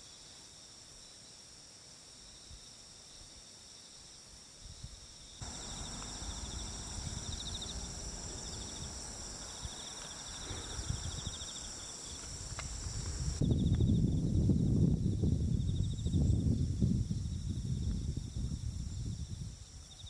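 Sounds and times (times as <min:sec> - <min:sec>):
insects chirping: 0:00.0 - 0:20.0
pulsing insect trill: 0:05.0 - 0:20.0
low background rumble: 0:05.4 - 0:09.8.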